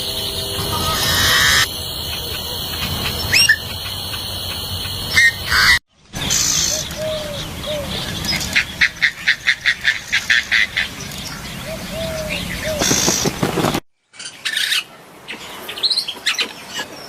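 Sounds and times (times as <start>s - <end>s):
low arching bird calls: 0.0s - 13.4s
bird high whine: 0.0s - 13.7s
rapid sharp bird notes: 0.0s - 13.7s.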